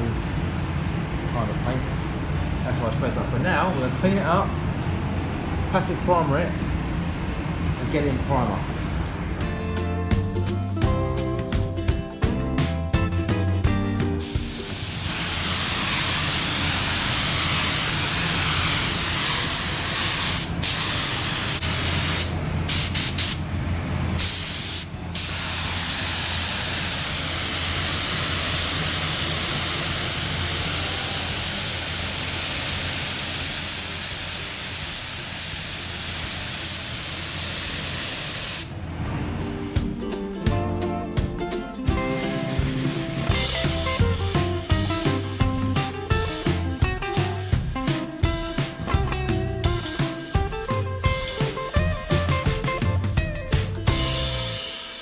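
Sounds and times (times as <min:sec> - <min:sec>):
paint spray gun hissing: 0:14.2 - 0:38.8.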